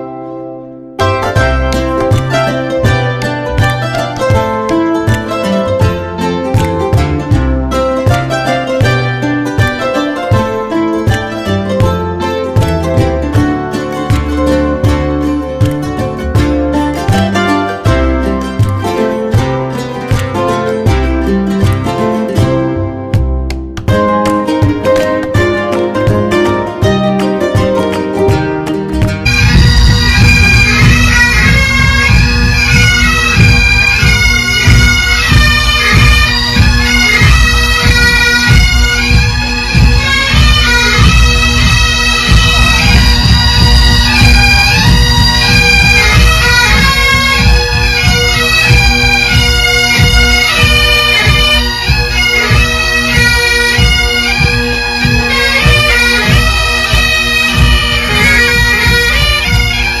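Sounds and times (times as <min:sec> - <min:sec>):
drumbeats: 0:01.0 - 1:00.0
bagpipe drone and melody: 0:29.2 - 1:00.0.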